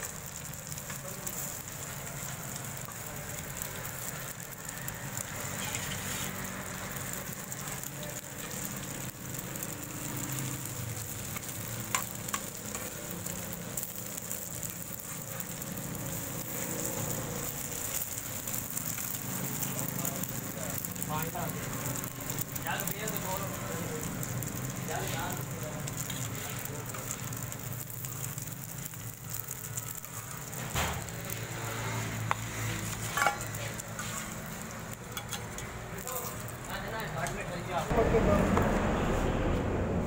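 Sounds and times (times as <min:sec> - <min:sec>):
omelette sizzling in oil: 0:00.0 - 0:37.9
metal spatula scraping pan: 0:05.4 - 0:06.5, 0:31.7 - 0:35.8.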